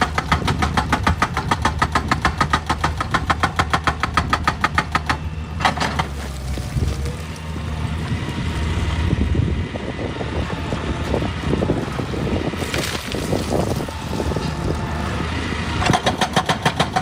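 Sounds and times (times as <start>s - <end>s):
excavator engine rumbling: 0.0s - 17.0s
wind noise on microphone: 7.9s - 17.0s.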